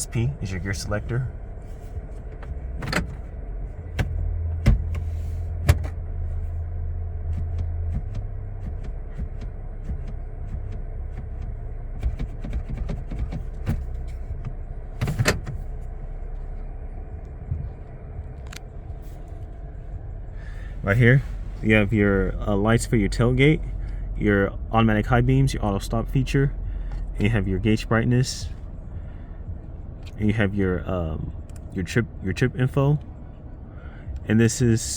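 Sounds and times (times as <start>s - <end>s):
clicks and taps of cab controls: 0.1s - 6.6s, 7.2s - 22.4s, 26.8s - 27.5s, 29.5s - 30.3s, 31.3s - 33.4s
pickup truck idling: 13.4s - 30.0s.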